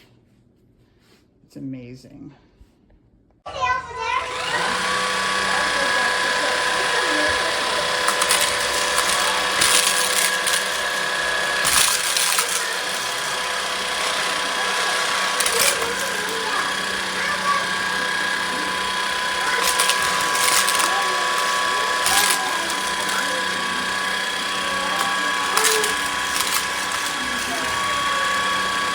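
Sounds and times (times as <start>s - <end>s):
stick vacuum motor whining: 3.5s - 28.9s.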